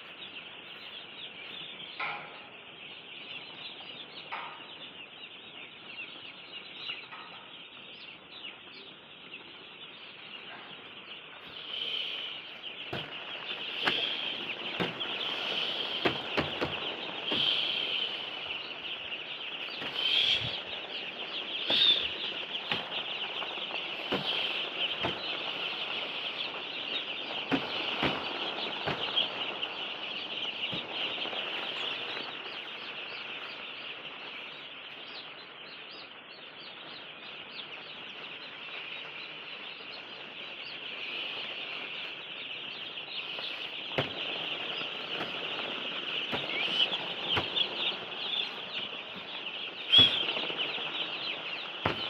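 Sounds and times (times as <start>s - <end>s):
poultry peeping and clucking: 0.0s - 52.0s
short knocks: 21.7s - 23.0s, 49.9s - 50.5s.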